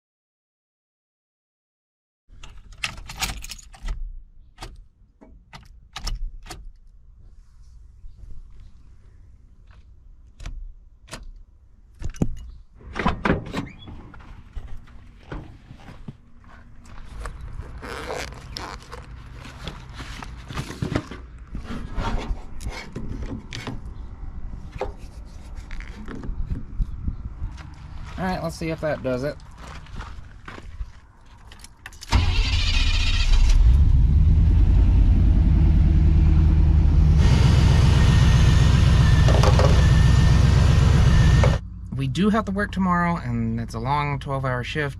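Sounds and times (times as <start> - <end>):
rubbing and scraping: 13.9 - 23.9, 24.7 - 26.7
low steady rumble: 32.9 - 44.9.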